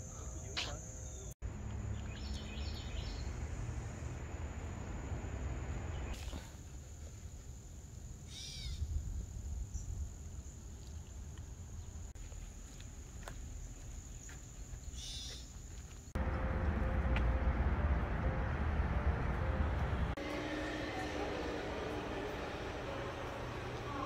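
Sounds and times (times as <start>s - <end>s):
low background rumble: 16.2s - 24.0s.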